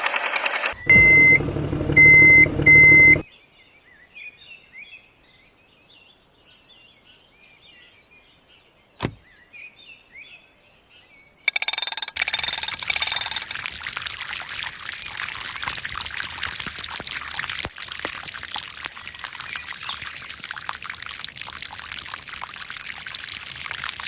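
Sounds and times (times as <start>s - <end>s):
short high electronic beeps: 0.2s - 3.2s.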